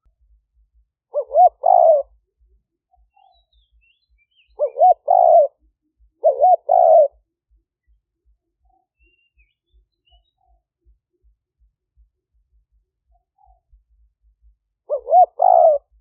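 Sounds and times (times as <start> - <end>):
dove cooing: 1.1 - 2.2, 4.4 - 7.2, 14.9 - 16.0
small birds chirping: 1.1 - 16.0.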